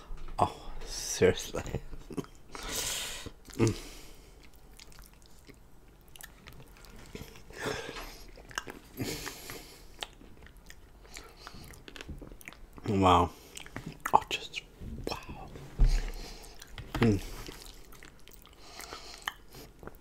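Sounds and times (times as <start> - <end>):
wet chewing and biting: 4.4 - 12.9, 16.4 - 20.0.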